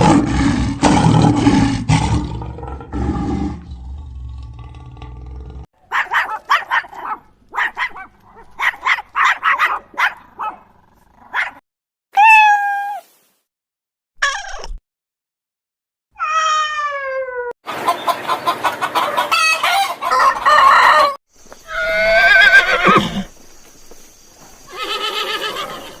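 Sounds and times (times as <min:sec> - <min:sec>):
animal bleats: 0:24.7 - 0:26.0.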